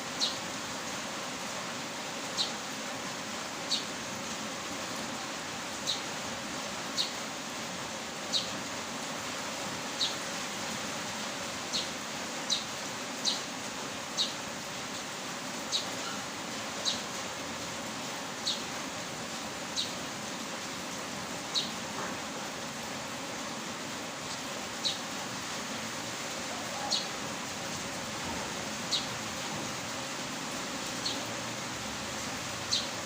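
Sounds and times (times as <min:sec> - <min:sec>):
rain hiss: 0:00.0 - 0:33.0
bird chirping: 0:07.0 - 0:07.2, 0:08.3 - 0:08.6, 0:10.0 - 0:10.2, 0:12.5 - 0:13.5, 0:14.2 - 0:14.4, 0:15.7 - 0:16.2, 0:18.4 - 0:18.7, 0:19.8 - 0:20.0, 0:21.5 - 0:21.8, 0:26.7 - 0:27.2, 0:28.9 - 0:29.2, 0:32.7 - 0:33.0.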